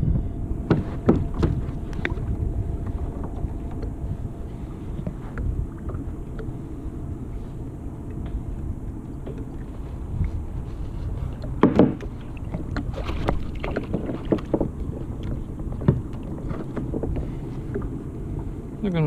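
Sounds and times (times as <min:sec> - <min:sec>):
wind rumble on microphone: 0:00.0 - 0:19.0
knocks and thumps on a kayak: 0:00.6 - 0:03.8, 0:11.3 - 0:18.0.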